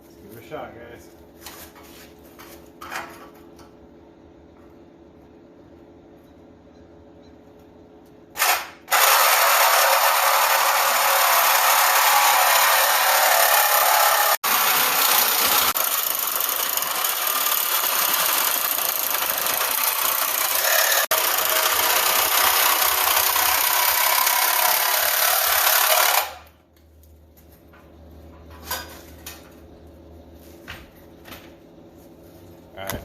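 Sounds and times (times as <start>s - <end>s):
angle grinder cutting steel: 8.4s - 26.5s.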